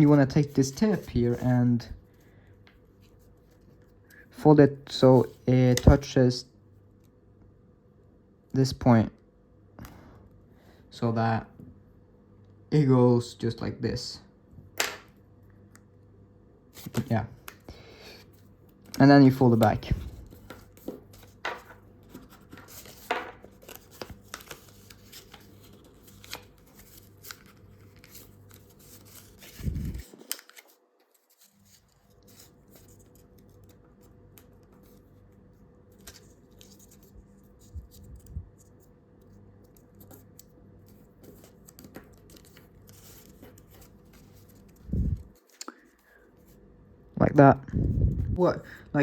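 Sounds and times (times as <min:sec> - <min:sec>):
paper rustling and crinkling: 0:18.3 - 0:46.6.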